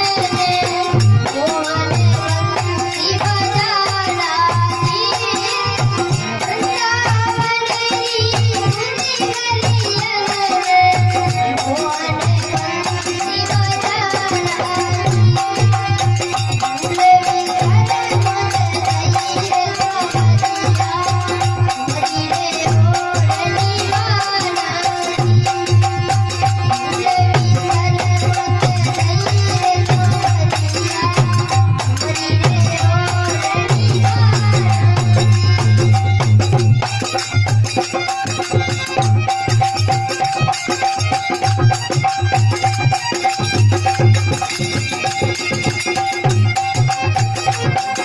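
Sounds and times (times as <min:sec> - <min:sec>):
held melodic instrument line: 0:00.0 - 0:48.0
rattling percussion: 0:00.0 - 0:48.0
steady low drum beat: 0:25.1 - 0:37.7.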